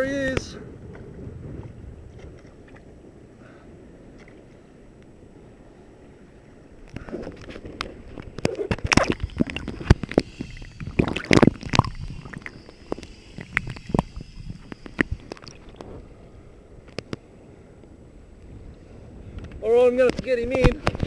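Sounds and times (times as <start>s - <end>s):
water sloshing and splashing: 6.8s - 17.2s.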